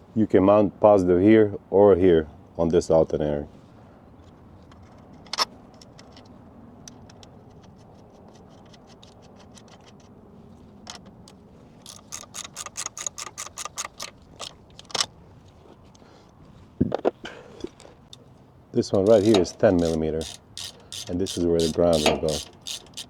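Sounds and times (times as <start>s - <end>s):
socket ratchet clicking: 11.8s - 15.1s, 19.0s - 23.0s.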